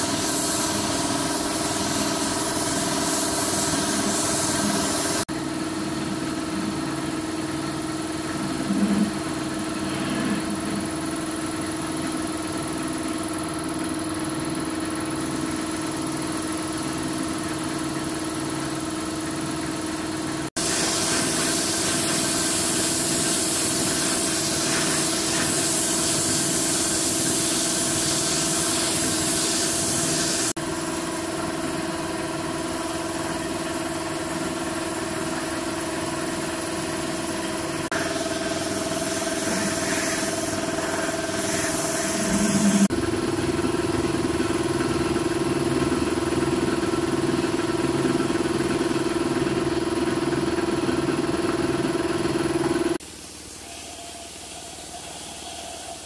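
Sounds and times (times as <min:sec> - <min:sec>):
loud spraying hiss: 0:00.0 - 0:05.3, 0:20.6 - 0:30.6, 0:36.5 - 0:42.9.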